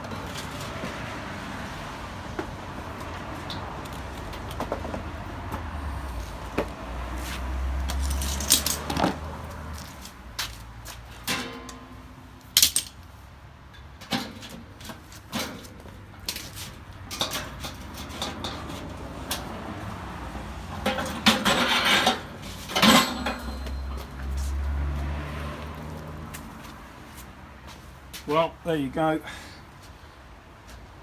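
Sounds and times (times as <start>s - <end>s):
sheet metal parts clanking: 11.2s - 13.0s, 20.7s - 24.1s.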